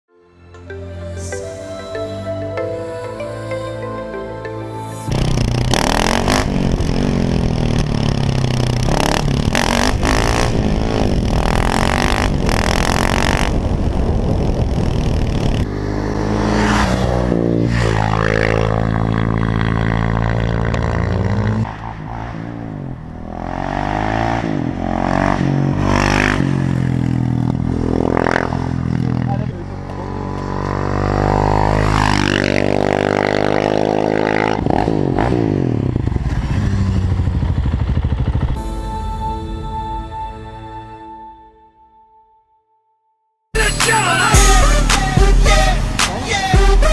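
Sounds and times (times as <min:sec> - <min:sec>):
motorcycle engine revving past: 0:05.1 - 0:38.6.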